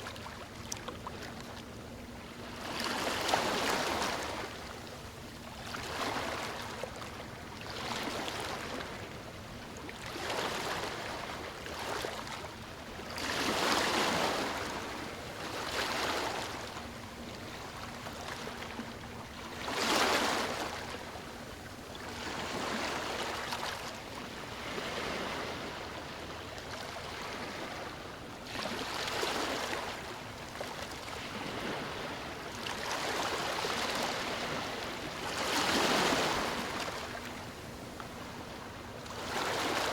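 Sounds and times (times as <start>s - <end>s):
sea waves washing in: 24.2s - 30.1s, 31.1s - 39.9s.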